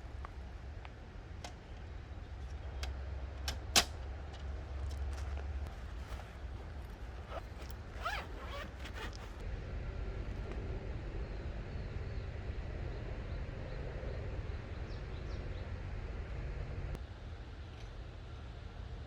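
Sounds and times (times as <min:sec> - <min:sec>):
zipper pulled: 0:05.2 - 0:09.4.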